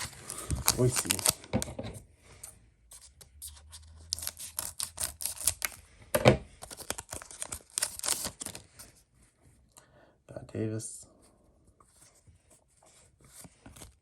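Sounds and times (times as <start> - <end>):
cards flipping and sliding: 0.0 - 1.7, 2.9 - 5.8, 6.6 - 8.8, 13.2 - 14.0.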